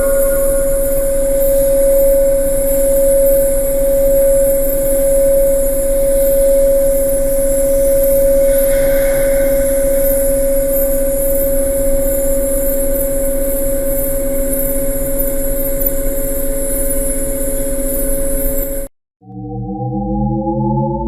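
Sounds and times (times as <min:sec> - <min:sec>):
mechanical drone with hum: 0:00.0 - 0:21.0
rising synthetic tones: 0:08.4 - 0:10.8, 0:19.2 - 0:21.0.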